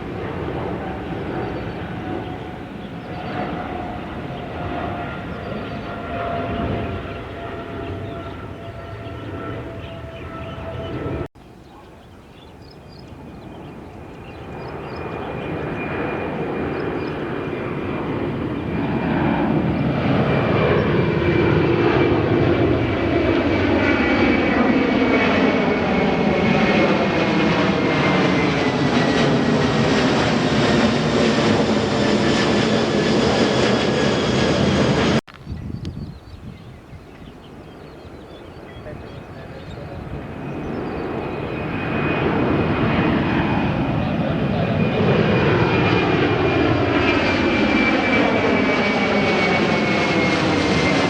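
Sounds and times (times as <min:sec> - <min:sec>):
jet airliner engines taking off: 0:00.0 - 0:51.0.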